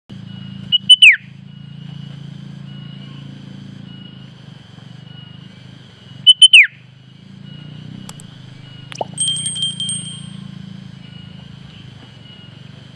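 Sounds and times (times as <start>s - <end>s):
faint high whine: 7.6s - 11.4s
low hum: 8.0s - 10.5s.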